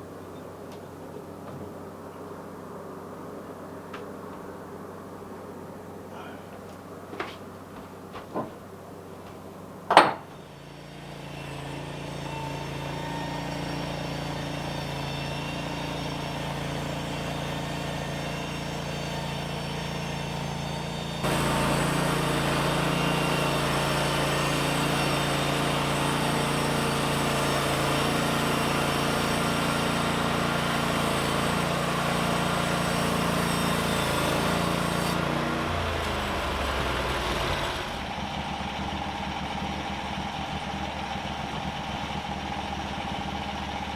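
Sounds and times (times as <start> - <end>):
sawmill engine running: 0.0 - 43.9
blade sawing through log: 10.4 - 38.1.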